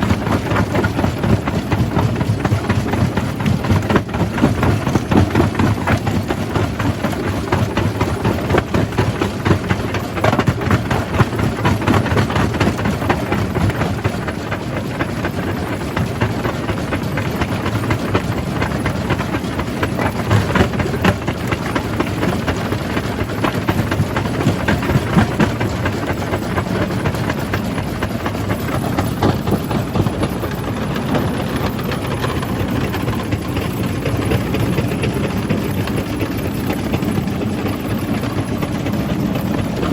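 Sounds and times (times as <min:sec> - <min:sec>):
jaw crusher drone: 0:36.8 - 0:39.9.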